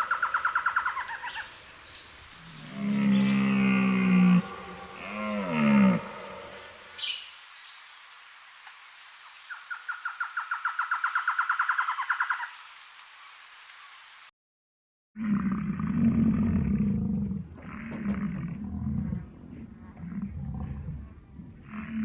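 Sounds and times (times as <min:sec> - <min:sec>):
wild animal calls: 0:02.4 - 0:07.1, 0:15.2 - 0:22.0.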